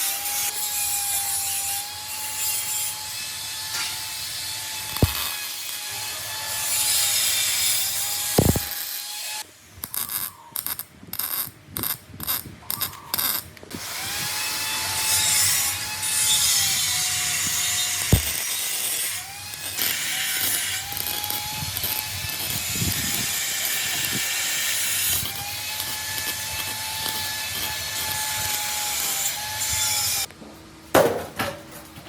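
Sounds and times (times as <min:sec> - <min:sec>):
wavering tool whine: 0:07.9 - 0:09.0.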